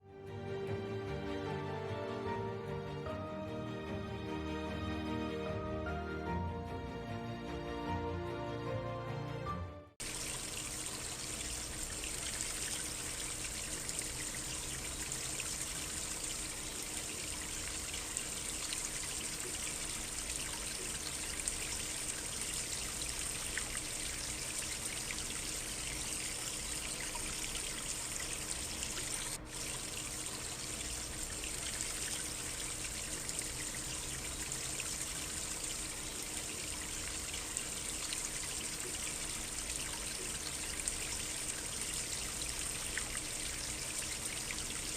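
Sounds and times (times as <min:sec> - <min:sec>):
stream trickling: 0:10.0 - 0:44.9.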